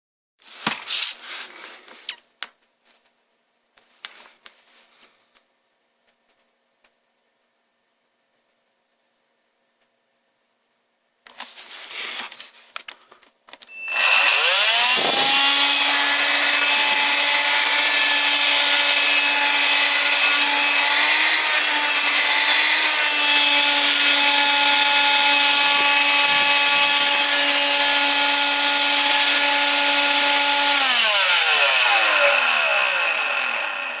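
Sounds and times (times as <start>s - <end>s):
stick vacuum motor whining: 13.7s - 34.0s.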